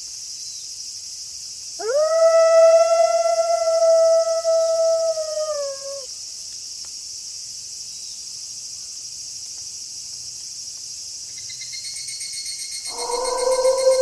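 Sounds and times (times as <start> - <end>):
crickets chirring: 0.0 - 14.0
wolf howl: 1.8 - 6.1, 12.9 - 14.0
faint high steady tones: 12.7 - 14.0.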